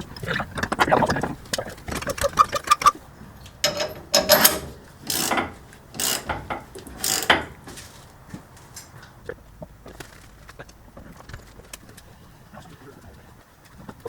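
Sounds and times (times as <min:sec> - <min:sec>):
hand ratchet clicking: 0:03.4 - 0:07.8.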